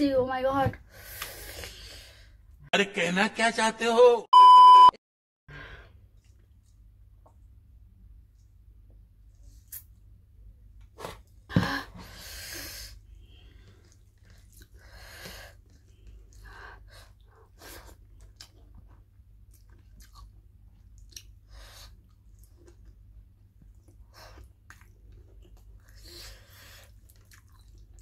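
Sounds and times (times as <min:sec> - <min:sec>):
wet chewing and lip smacking: 0:17.2 - 0:28.0.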